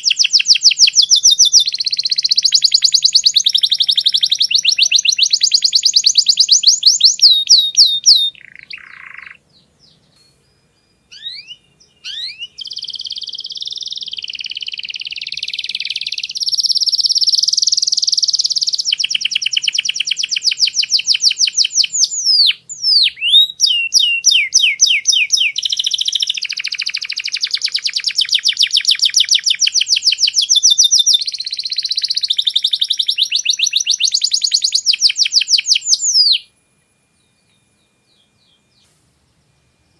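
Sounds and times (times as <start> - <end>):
canary singing trills: 0.0 - 39.6.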